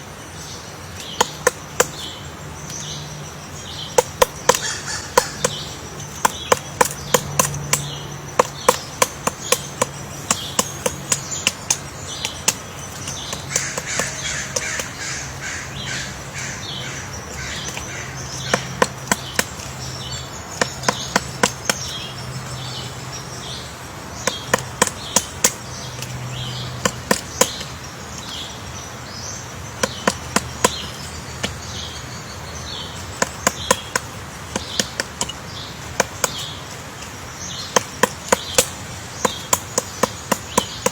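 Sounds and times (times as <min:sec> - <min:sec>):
birds calling: 0:00.0 - 0:40.9
woodpecker tapping on wood: 0:00.4 - 0:40.9.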